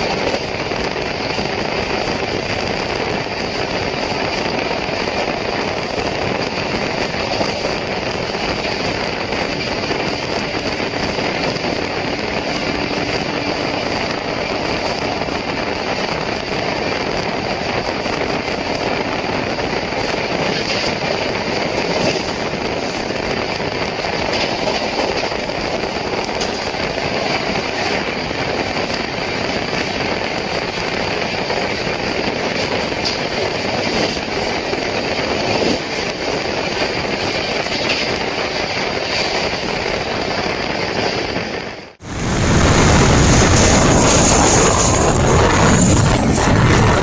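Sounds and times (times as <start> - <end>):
train wheels rumbling on rails: 0.0 - 47.0
rushing air: 42.0 - 47.0.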